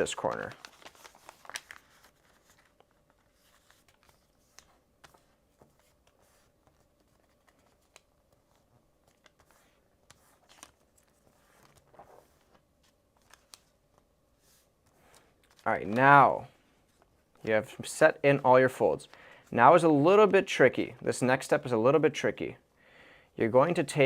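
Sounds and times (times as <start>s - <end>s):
paper being folded by hand: 0.0s - 17.6s.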